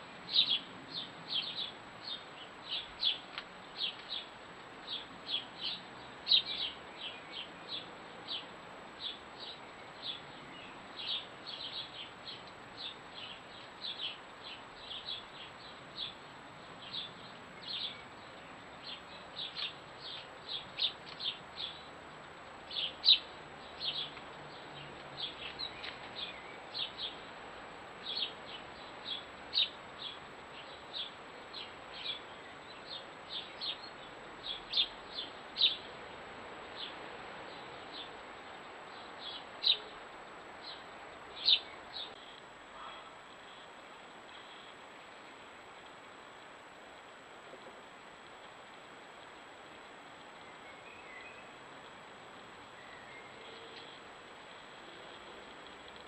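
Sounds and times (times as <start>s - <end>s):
small bird chirping: 4.9s - 22.0s, 22.7s - 27.2s, 28.0s - 35.9s, 36.8s - 40.0s, 40.6s - 45.4s, 50.2s - 51.9s.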